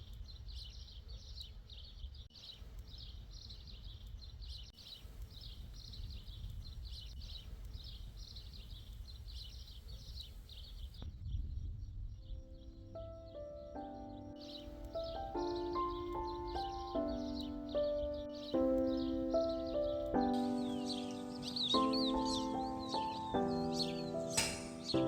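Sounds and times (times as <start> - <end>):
high chirps: 13.0 - 25.0.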